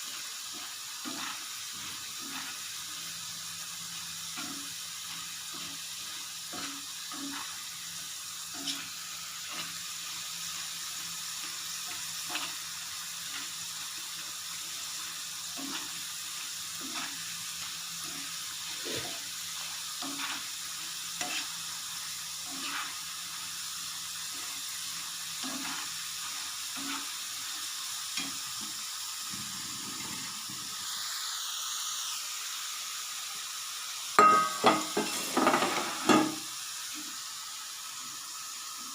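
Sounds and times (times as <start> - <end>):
food sizzling in hot oil: 0.0 - 38.9
spoon knocking in pan: 34.2 - 36.4.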